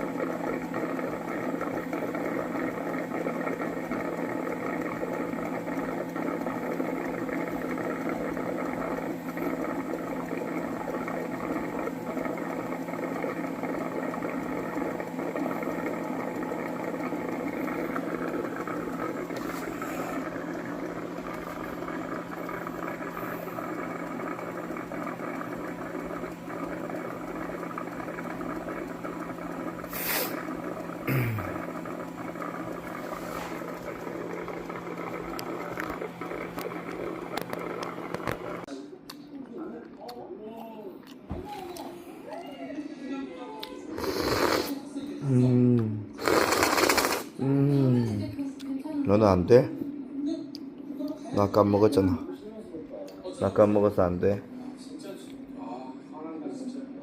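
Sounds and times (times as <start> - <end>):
robot vacuum cleaner whirring: 0.0 - 38.7.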